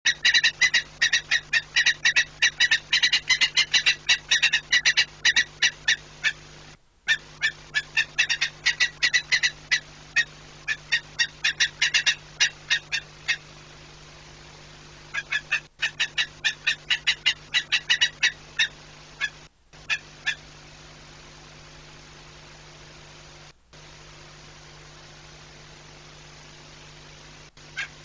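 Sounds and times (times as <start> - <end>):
falcon kek-kek call: 0.1 - 6.5, 7.1 - 13.5, 15.1 - 20.5, 27.7 - 28.0
steady low hum: 0.1 - 28.0.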